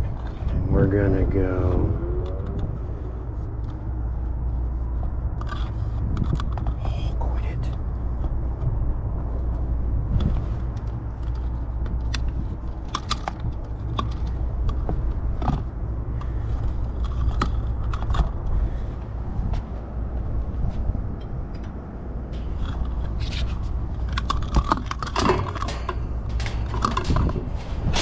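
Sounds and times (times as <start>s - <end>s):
steady low rumble: 0.0s - 28.0s
clicks of hand tools and wire: 10.1s - 18.4s, 21.2s - 28.0s.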